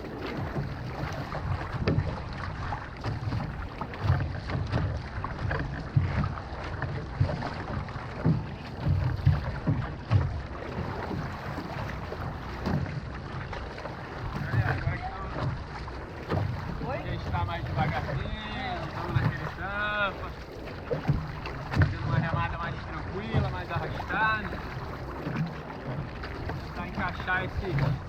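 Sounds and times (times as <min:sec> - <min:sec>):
canoe paddling water noise: 0:00.0 - 0:28.0.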